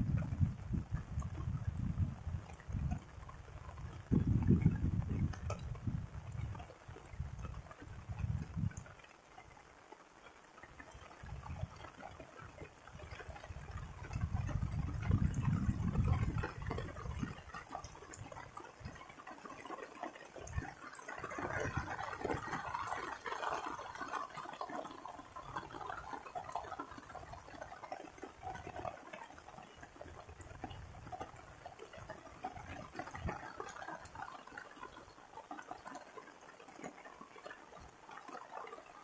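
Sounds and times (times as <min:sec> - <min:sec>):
rain pattering on water: 0:00.0 - 0:39.0.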